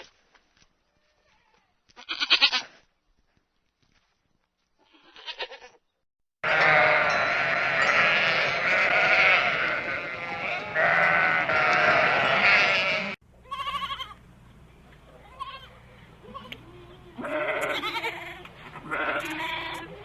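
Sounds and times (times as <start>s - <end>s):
short bleat: 1.2s - 2.8s, 4.8s - 5.8s, 6.4s - 14.2s, 16.3s - 19.9s
flock bleating: 6.4s - 14.2s, 15.3s - 20.0s.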